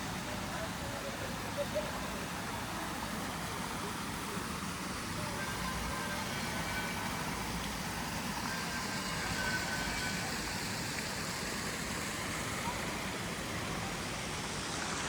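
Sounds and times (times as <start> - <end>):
city noise: 0.0 - 15.0.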